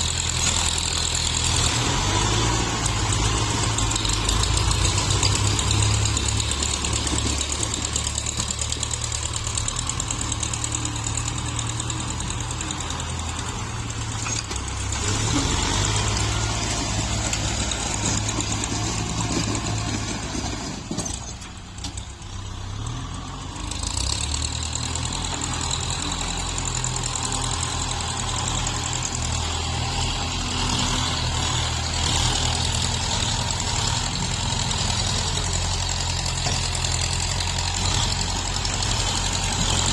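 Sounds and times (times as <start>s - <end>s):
diesel tractor engines running: 0.0s - 39.9s.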